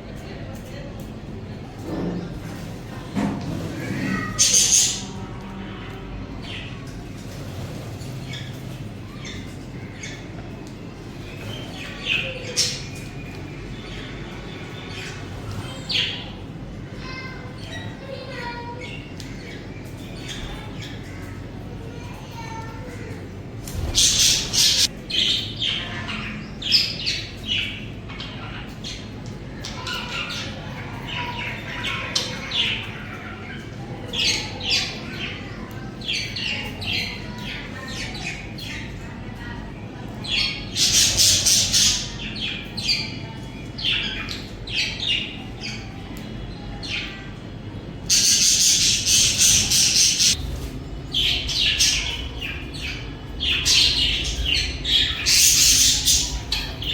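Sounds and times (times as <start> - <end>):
budgerigars chirping: 51.2 - 56.9.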